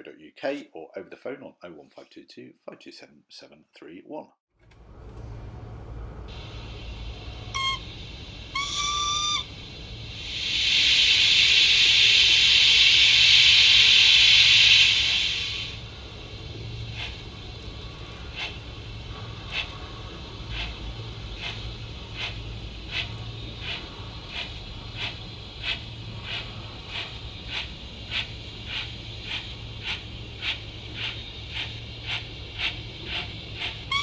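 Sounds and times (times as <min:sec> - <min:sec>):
locomotive exhaust chuffs: 0:04.7 - 0:34.0
loud steam hiss: 0:06.3 - 0:34.0
steam whistle: 0:07.3 - 0:09.6, 0:10.2 - 0:15.8, 0:32.1 - 0:34.0.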